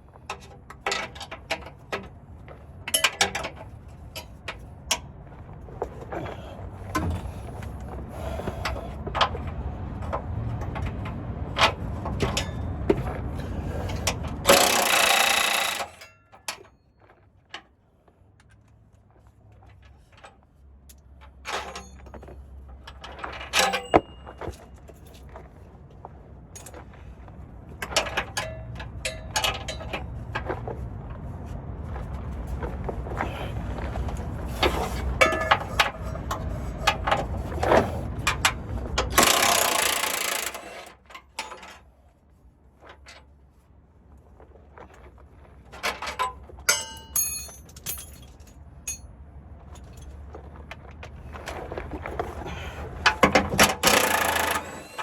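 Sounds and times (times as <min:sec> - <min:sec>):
low mechanical hum: 0:00.0 - 0:55.0
metallic clicks and clanks: 0:02.9 - 0:05.0, 0:13.9 - 0:16.8, 0:19.8 - 0:25.2, 0:27.8 - 0:30.5, 0:34.6 - 0:41.8, 0:45.8 - 0:49.1, 0:53.0 - 0:55.0.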